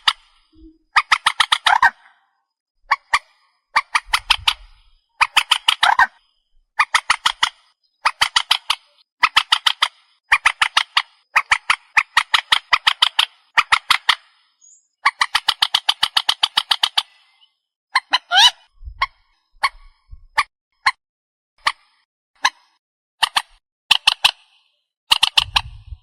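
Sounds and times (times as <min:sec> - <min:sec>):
waterbird calling harsh notes: 0:18.0 - 0:19.8.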